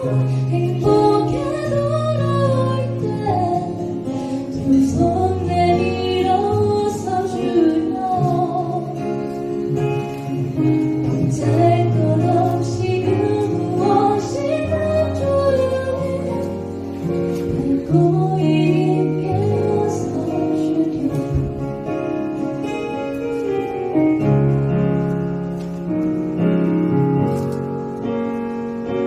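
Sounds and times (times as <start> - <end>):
woman singing slow song: 0.0 - 9.8, 11.0 - 21.8
guitar: 0.0 - 29.0.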